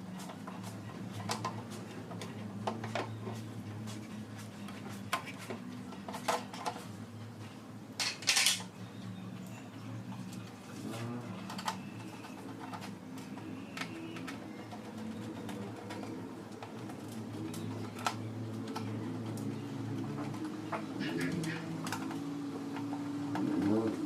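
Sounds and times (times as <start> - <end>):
tools and metal parts clinking: 8.0 - 8.8.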